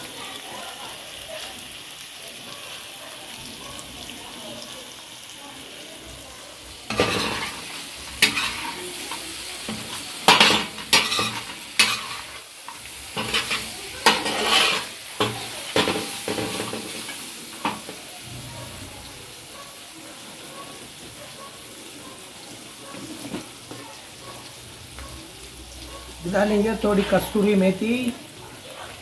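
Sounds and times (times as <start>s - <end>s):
meat sizzling on griddle: 0.0s - 29.0s
metal spatula scraping griddle: 6.9s - 18.0s, 26.4s - 27.6s.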